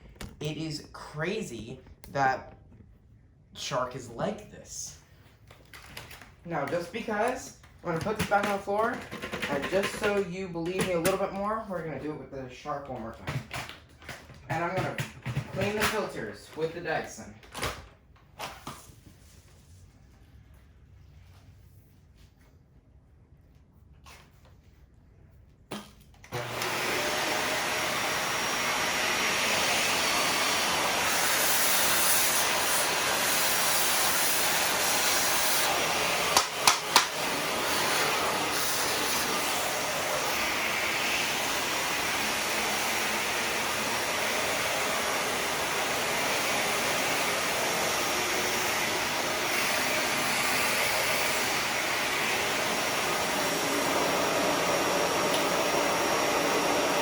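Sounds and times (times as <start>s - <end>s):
vacuum cleaner running: 14.5s - 16.9s, 26.3s - 57.0s.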